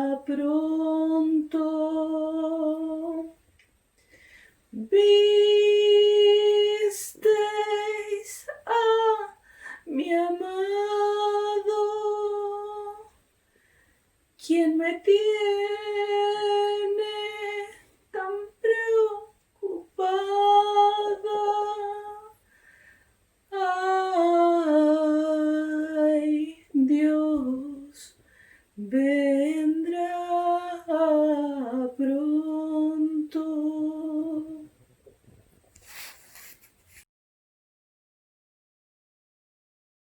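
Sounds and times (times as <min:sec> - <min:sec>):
woman singing unaccompanied: 0:00.0 - 0:03.4, 0:04.7 - 0:13.2, 0:14.4 - 0:22.4, 0:23.5 - 0:28.2, 0:28.8 - 0:34.8.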